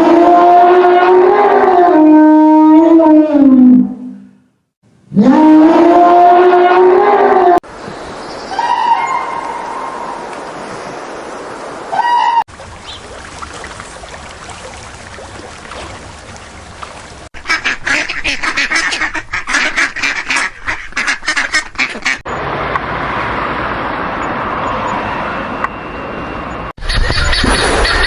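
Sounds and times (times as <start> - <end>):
ducks quacking: 17.4 - 22.2.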